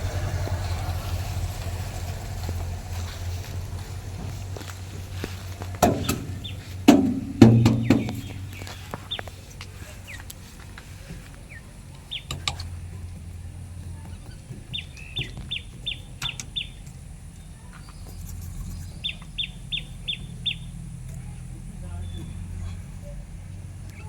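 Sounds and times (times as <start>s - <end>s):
bird chirping: 0.0s - 23.2s
low hum: 0.0s - 24.0s.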